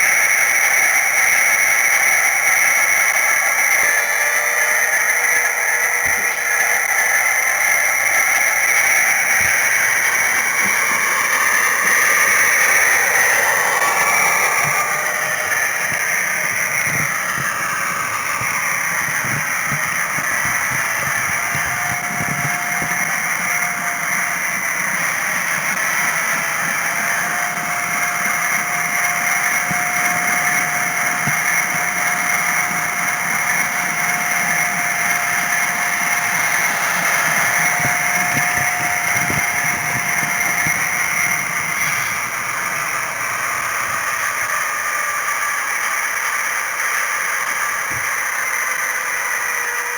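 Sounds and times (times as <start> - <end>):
model train motor whirring: 0.0 - 49.9
steady thin whine: 0.0 - 49.9
diesel engine sound from small speaker: 8.8 - 44.5.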